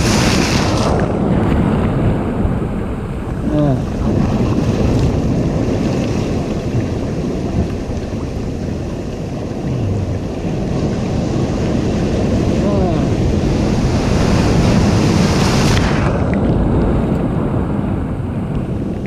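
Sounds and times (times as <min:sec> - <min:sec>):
ocean surf breaking: 0:00.0 - 0:19.0
wind rumbling on microphone: 0:00.0 - 0:19.0.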